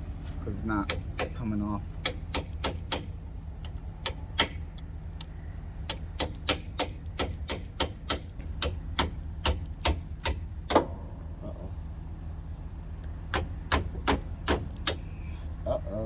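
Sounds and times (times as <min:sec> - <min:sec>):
hammer striking metal pin: 0:00.8 - 0:11.0, 0:13.3 - 0:15.1.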